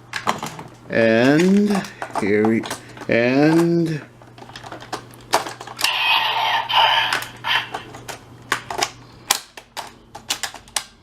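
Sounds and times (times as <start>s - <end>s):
electronic toy sound effect: 5.8s - 7.8s.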